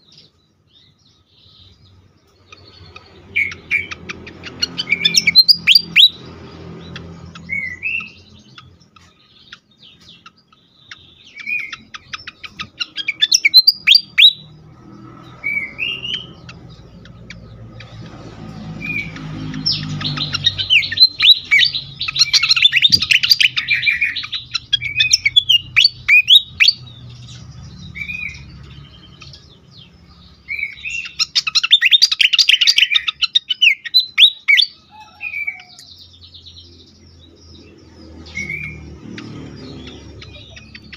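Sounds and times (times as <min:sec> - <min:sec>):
bird whistling: 0:02.9 - 0:06.3, 0:11.2 - 0:14.6, 0:15.4 - 0:16.5, 0:18.8 - 0:26.9, 0:30.4 - 0:35.8
bird chattering rapidly: 0:10.9 - 0:14.5, 0:15.6 - 0:29.5.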